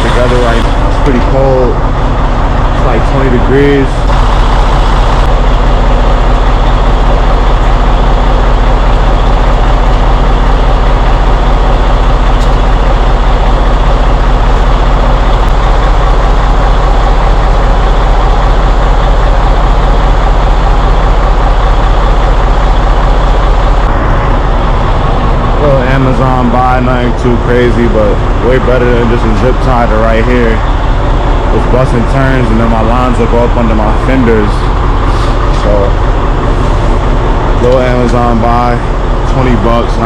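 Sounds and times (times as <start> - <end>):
diesel truck engine idling: 0.0 - 40.0.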